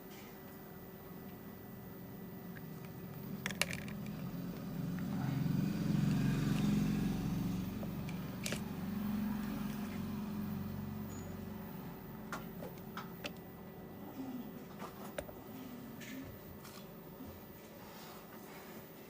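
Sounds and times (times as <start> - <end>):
vehicle engine passing by: 3.9 - 12.0.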